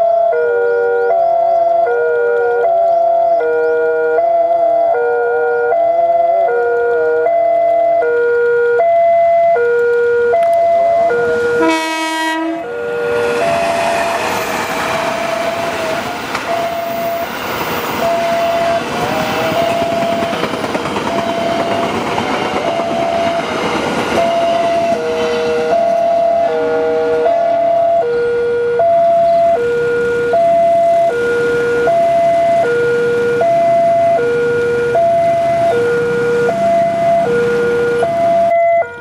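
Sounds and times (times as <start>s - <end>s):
level crossing alarm chiming: 0.0s - 39.0s
train rumbling past: 10.4s - 39.0s
train horn blast: 11.1s - 17.2s, 18.0s - 20.5s, 24.2s - 28.8s.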